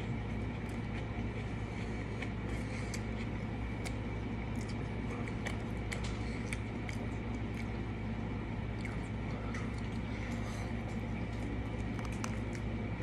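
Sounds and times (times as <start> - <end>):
low hum: 0.0 - 13.0
person chewing with mouth smacks: 0.1 - 7.9, 8.6 - 13.0.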